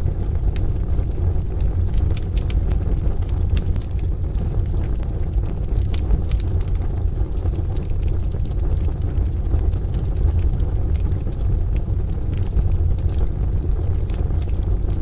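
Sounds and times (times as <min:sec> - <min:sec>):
rain: 0:00.0 - 0:15.0
wood fire crackling: 0:00.0 - 0:15.0.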